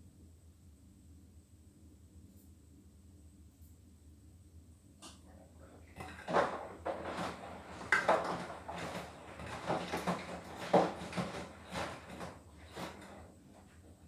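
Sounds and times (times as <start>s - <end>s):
laundry sloshing in washing machine: 5.8s - 14.0s.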